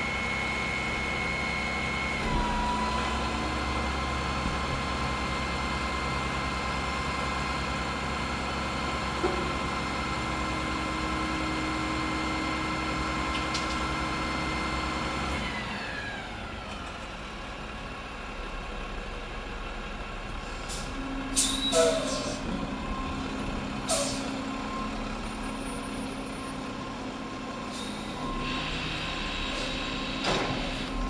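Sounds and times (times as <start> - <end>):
garbage truck engine running: 0.0 - 31.0
air brake hisses: 20.4 - 22.5, 23.9 - 24.4, 27.7 - 30.0.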